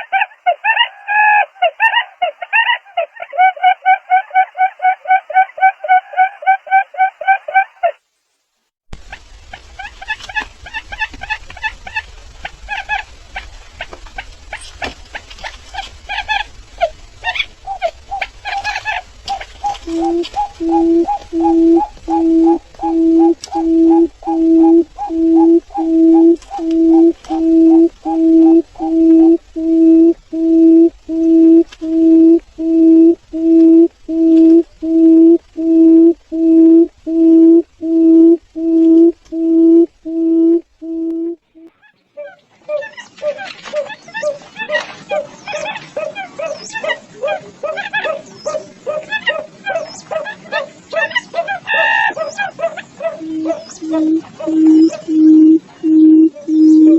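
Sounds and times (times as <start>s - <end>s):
steady low hum: 8.9s - 41.7s, 52.9s - 56.9s
bird chirping: 9.1s - 43.2s, 45.1s - 56.9s.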